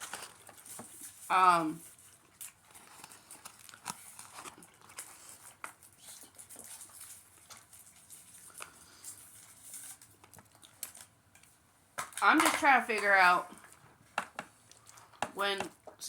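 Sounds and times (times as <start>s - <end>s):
paper packaging crinkling: 0.0s - 11.4s
chewing: 1.8s - 11.6s, 14.5s - 15.2s.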